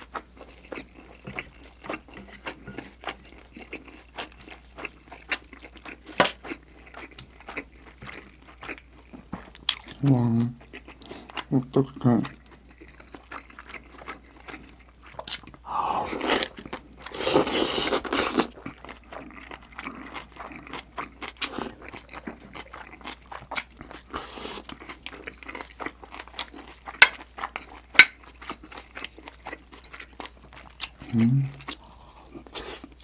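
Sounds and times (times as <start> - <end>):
crunching and chewing: 0.0 - 33.0.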